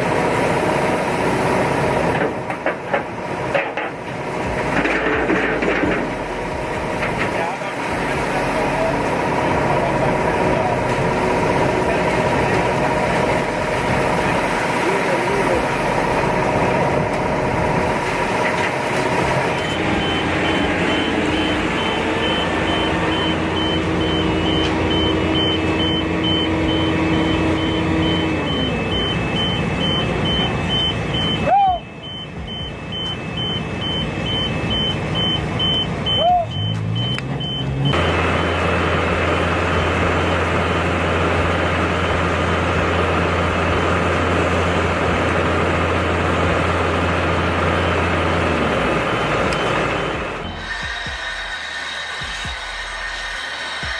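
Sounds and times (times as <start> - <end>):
heavy construction machinery running: 0.0 - 53.9
high-pitched beeping: 19.2 - 38.8.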